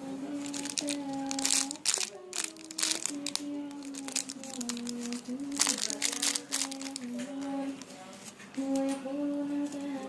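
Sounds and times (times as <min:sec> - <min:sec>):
person humming a tune: 0:00.0 - 0:07.9
plastic or paper crinkling: 0:00.4 - 0:09.0.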